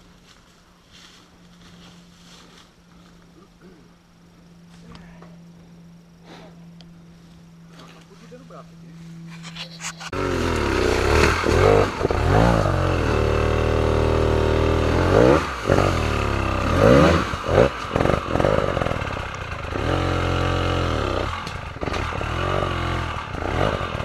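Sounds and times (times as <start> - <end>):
motorcycle engine revving hard: 10.0 - 24.0.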